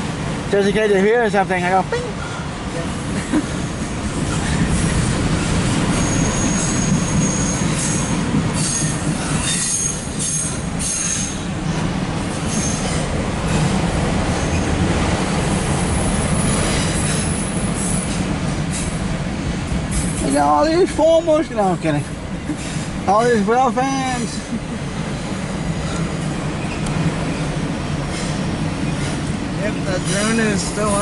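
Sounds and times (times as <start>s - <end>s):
freight train wheels rumbling: 0.0s - 31.0s
high wheel squeal: 4.3s - 11.8s, 12.4s - 13.7s, 14.3s - 14.8s, 15.8s - 19.0s, 25.2s - 29.3s.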